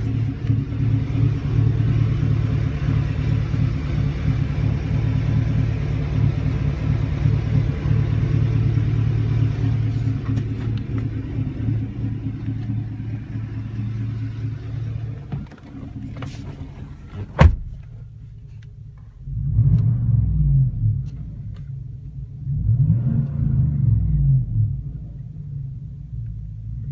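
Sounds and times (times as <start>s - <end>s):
deep exhaust rumble: 0.0s - 26.9s.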